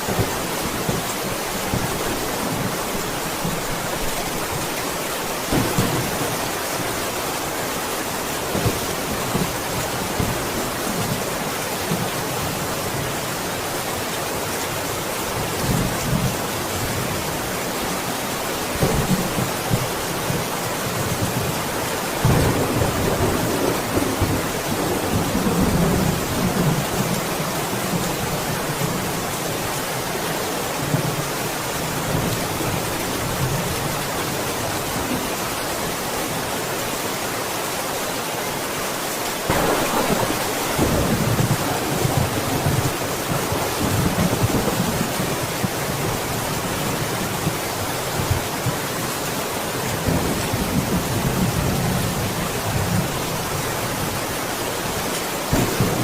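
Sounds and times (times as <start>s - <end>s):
heavy rain: 0.0s - 56.0s
thunder rumbling: 5.5s - 6.9s, 22.2s - 27.2s, 39.5s - 46.4s, 55.5s - 56.0s.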